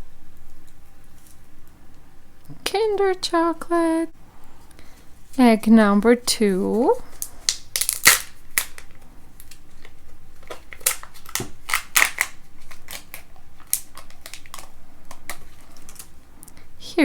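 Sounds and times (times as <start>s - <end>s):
plastic clicks and crinkles: 7.1s - 16.6s.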